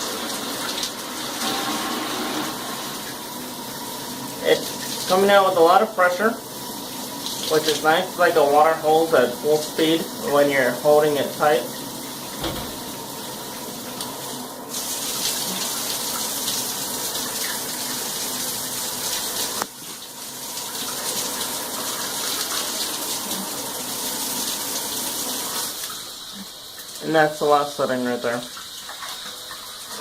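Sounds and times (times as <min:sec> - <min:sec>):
shower setting click: 0:12.4 - 0:12.9.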